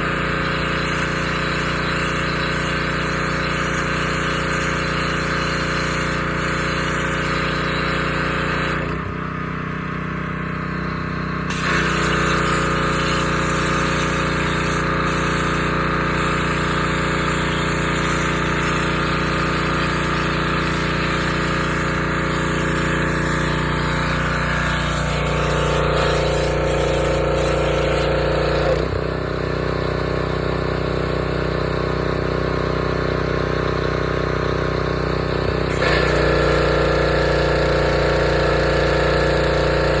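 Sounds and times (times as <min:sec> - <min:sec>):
pressure washer engine running: 0:00.0 - 0:40.0
spray hissing: 0:11.5 - 0:28.8.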